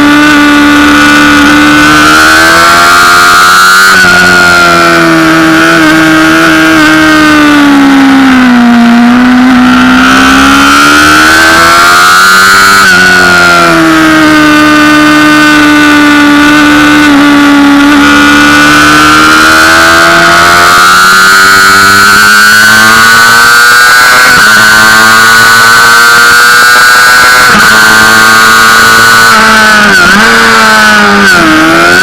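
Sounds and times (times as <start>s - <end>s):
motorcycle engine at high revs: 0.0s - 32.0s.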